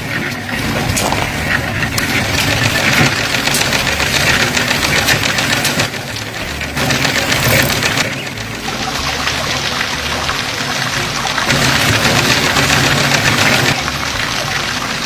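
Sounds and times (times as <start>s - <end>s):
tractor diesel engine knocking: 0.3s - 9.3s.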